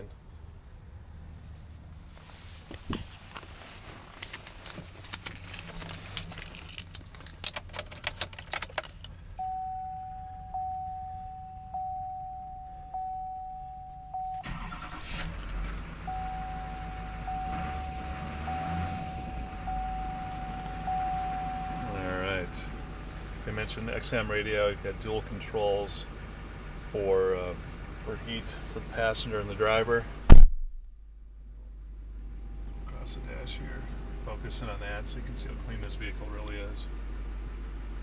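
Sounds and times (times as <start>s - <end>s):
diesel engine starting and idling: 5.0s - 30.4s
truck warning chime dinging: 9.4s - 15.2s, 16.0s - 23.1s.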